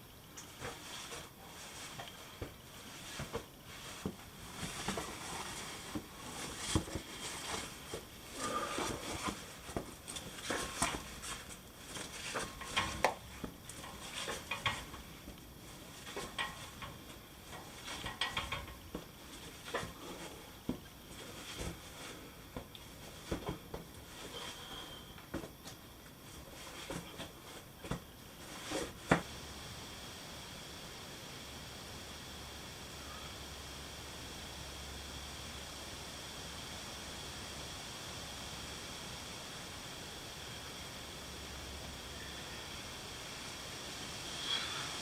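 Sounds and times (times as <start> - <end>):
movement over rock: 0.5 - 29.3
gear handling clicks and knocks: 8.8 - 20.0.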